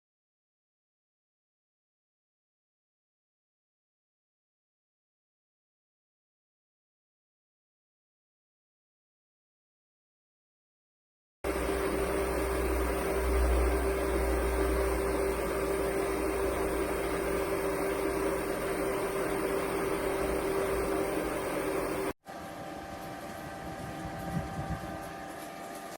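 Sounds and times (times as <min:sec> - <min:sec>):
fan humming: 0:11.5 - 0:25.9.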